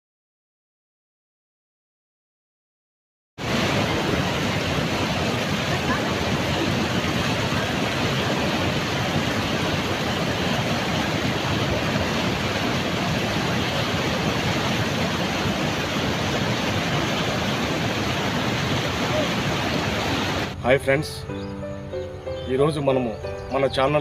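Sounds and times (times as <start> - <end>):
steady rushing noise: 3.4 - 20.7.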